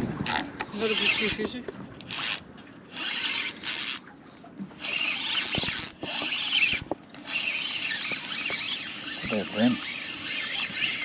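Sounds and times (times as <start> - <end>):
fishing reel buzzing: 2.0 - 4.1, 4.8 - 11.0.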